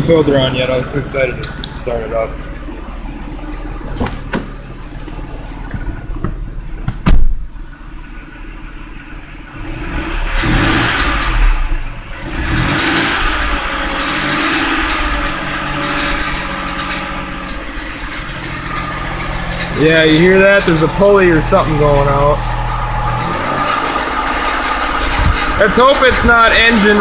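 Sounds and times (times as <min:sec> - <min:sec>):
car engine idling and revving: 0:00.0 - 0:27.0
engine pulley noise: 0:00.0 - 0:27.0
car door shutting: 0:03.8 - 0:04.6, 0:05.6 - 0:07.5.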